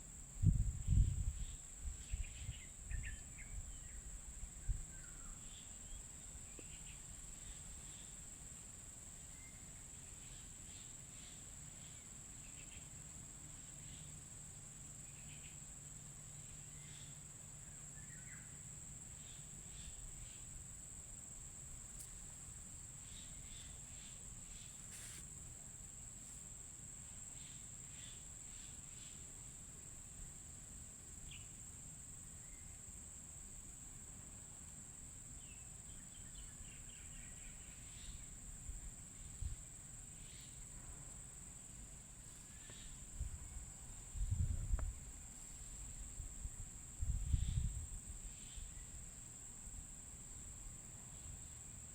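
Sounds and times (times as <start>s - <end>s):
faint bird chirps: 0.9s - 8.1s.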